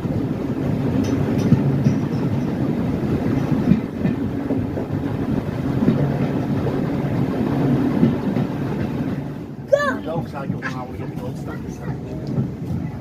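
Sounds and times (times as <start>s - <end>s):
wheels knocking on track: 0.0s - 9.4s
train rumble: 0.0s - 13.0s.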